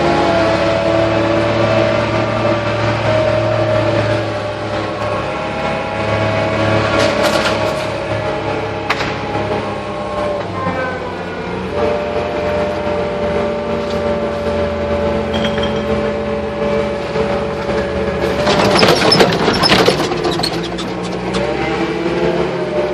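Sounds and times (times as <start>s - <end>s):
tractor engine running: 0.0s - 22.9s
loud clattering and scraping: 6.6s - 9.6s, 13.4s - 21.8s.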